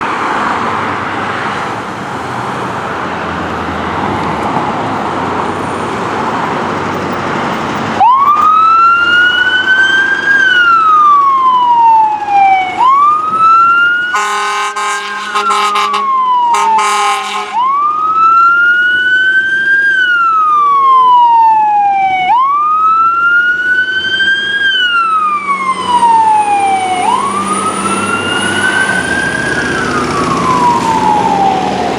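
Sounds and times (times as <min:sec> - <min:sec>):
fire engine siren wailing: 0:07.9 - 0:31.9
fire engine horn blasts: 0:14.0 - 0:17.8.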